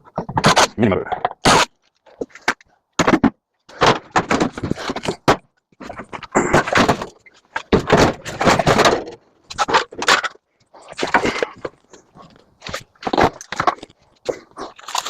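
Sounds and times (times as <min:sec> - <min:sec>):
metal parts clattering and scraping: 0:00.0 - 0:14.0.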